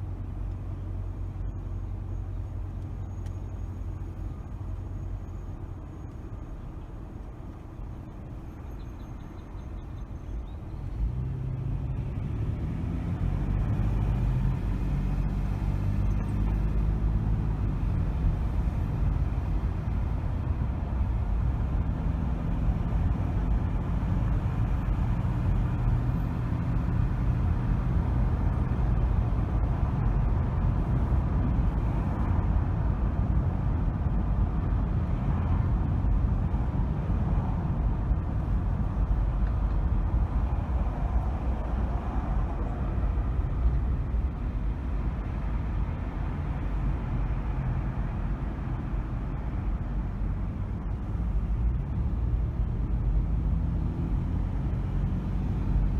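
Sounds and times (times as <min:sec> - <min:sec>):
car engine and tyres rumbling: 0:00.0 - 0:55.9.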